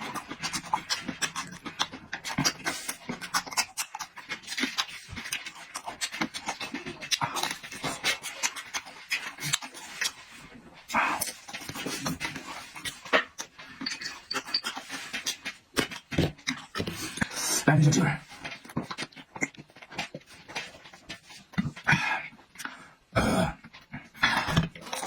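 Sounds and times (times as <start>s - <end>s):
wet chewing and lip-smacking: 0.0s - 22.8s.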